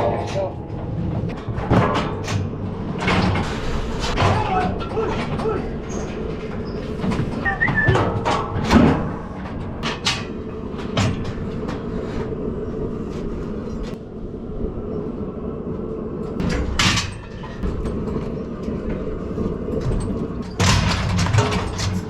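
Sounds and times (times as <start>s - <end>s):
steady hum: 0.0s - 21.8s
metal gates clanking and rattling: 1.3s - 11.9s, 16.4s - 22.0s.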